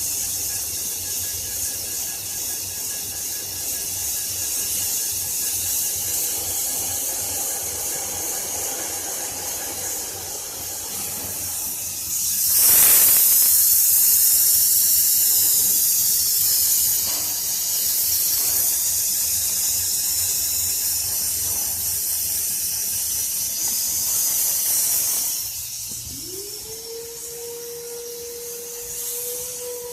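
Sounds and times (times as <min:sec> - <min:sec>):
high hiss of air blowing: 0:00.0 - 0:29.9.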